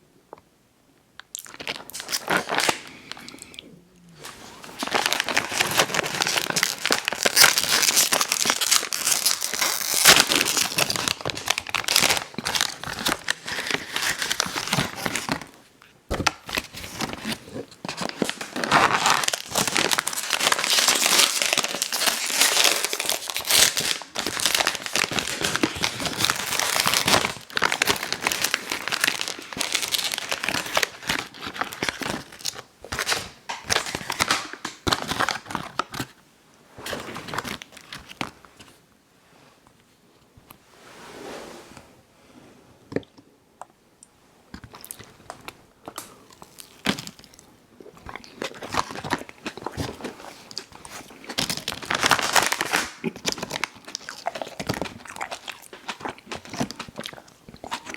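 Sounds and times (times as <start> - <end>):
wrapper crinkling: 1.3 - 3.3, 4.2 - 36.2, 36.8 - 38.7, 48.2 - 57.9.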